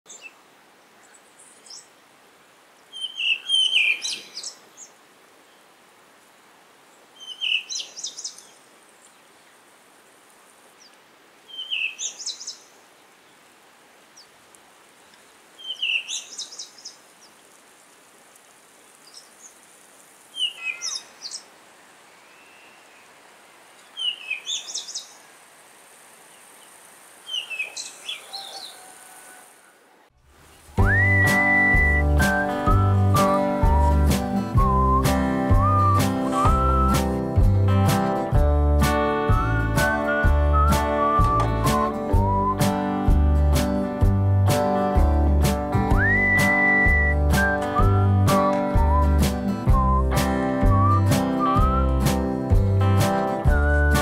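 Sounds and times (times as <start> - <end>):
songbird chirping: 0.1 - 38.2, 38.8 - 43.3, 45.3 - 54.0
faint hiss: 0.1 - 50.2.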